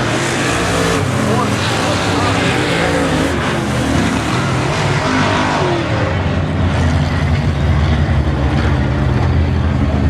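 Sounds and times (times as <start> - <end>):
race car engines droning: 0.0 - 10.0.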